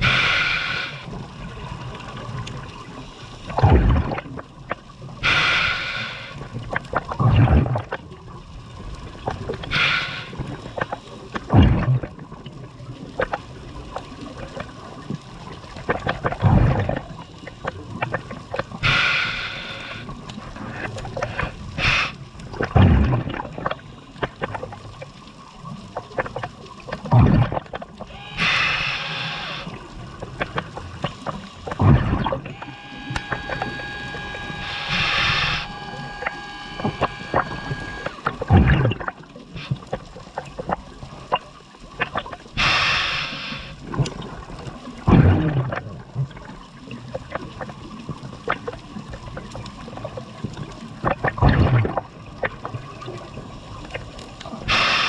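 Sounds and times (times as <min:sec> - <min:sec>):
diver inhaling through regulator: 0:00.0 - 0:01.2, 0:05.2 - 0:06.5, 0:09.6 - 0:10.6, 0:18.8 - 0:22.2, 0:28.1 - 0:29.8, 0:32.2 - 0:38.8, 0:42.6 - 0:43.8, 0:54.7 - 0:55.0
faint steady whine: 0:00.0 - 0:07.1, 0:08.4 - 0:11.4, 0:14.5 - 0:22.6, 0:26.7 - 0:40.8, 0:42.1 - 0:44.5, 0:52.7 - 0:55.0
gurgling exhaled bubbles: 0:00.0 - 0:55.0.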